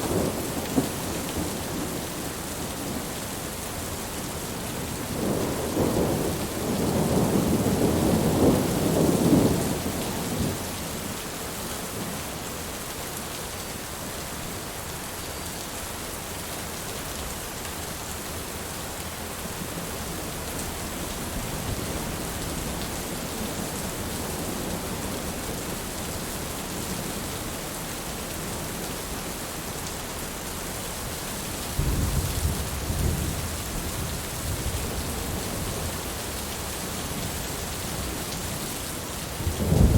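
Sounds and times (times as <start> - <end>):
steady rain: 0.0 - 39.9
rolling thunder rumbles: 4.9 - 10.7, 31.8 - 35.9, 39.4 - 39.9.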